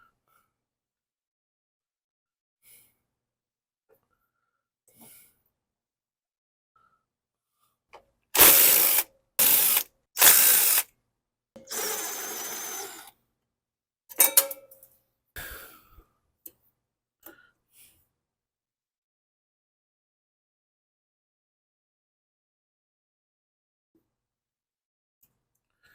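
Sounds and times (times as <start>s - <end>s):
power tool bursts: 8.4s - 10.9s, 11.6s - 13.1s.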